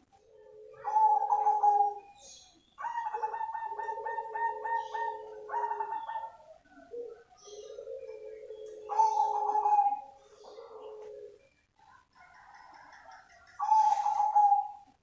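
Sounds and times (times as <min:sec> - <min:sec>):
dove pulsing coos: 0:00.0 - 0:15.0.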